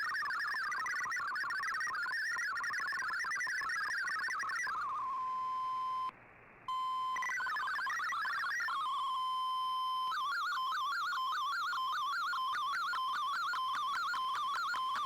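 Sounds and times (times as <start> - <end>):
warbling digital data tones: 0.0 - 5.0, 6.8 - 15.0.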